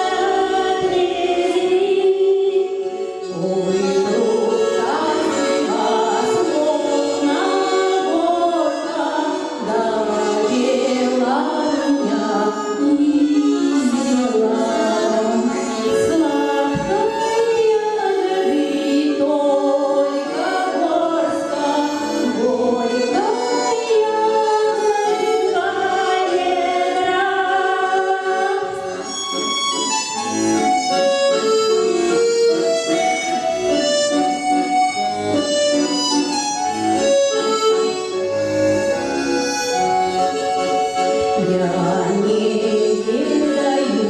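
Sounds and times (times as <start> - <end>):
person singing: 0.0 - 28.9, 41.4 - 44.0
accordion music: 0.0 - 44.0.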